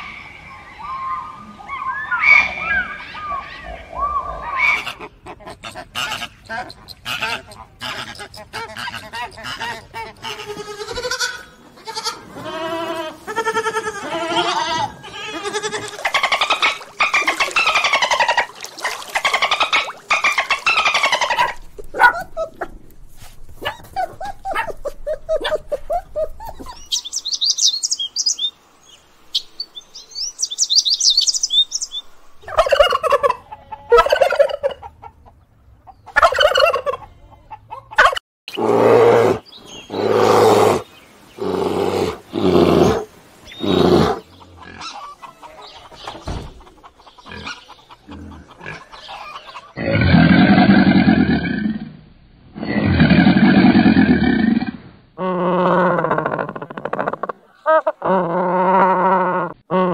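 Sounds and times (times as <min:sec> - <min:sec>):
turkey gobbling: 0:16.0 - 0:22.6, 0:32.4 - 0:35.4, 0:36.1 - 0:38.2, 0:44.0 - 0:49.8
small birds chirping: 0:23.6 - 0:32.7, 0:39.4 - 0:49.8
fowl calling: 0:42.9 - 0:49.8.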